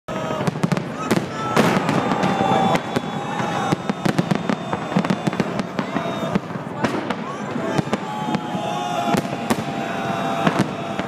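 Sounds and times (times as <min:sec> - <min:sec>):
fireworks bangs and crackles: 0:00.1 - 0:11.0.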